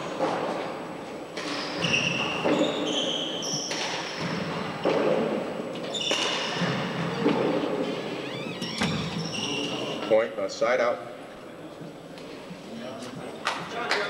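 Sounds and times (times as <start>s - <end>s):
sneaker squeaks on court floor: 1.4s - 4.8s, 5.8s - 10.0s.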